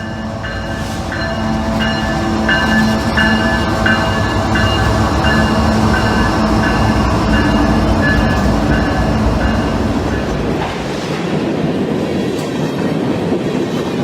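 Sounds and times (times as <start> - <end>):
train low rumble: 0.0 - 14.0
train wheels on rails: 0.0 - 14.0.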